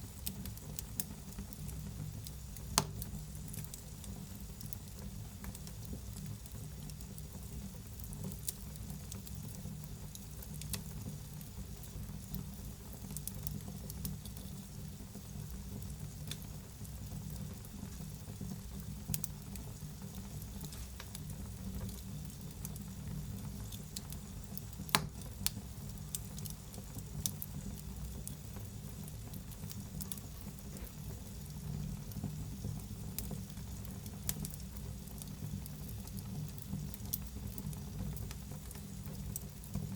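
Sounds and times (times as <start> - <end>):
fire light hiss: 0.0 - 39.9
fire low rumble: 0.0 - 39.9
wood fire crackling and popping: 0.0 - 39.9.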